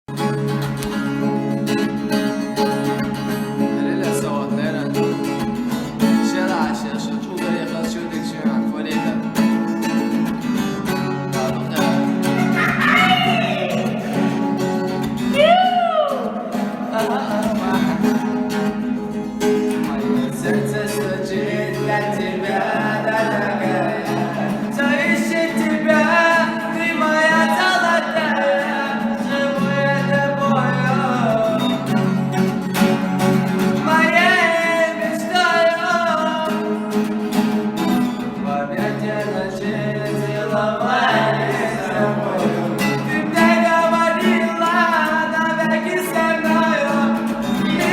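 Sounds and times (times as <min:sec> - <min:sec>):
guitar accompaniment: 0:00.1 - 0:47.9
person singing: 0:11.3 - 0:14.6, 0:15.2 - 0:32.4, 0:33.8 - 0:37.2, 0:38.2 - 0:47.9.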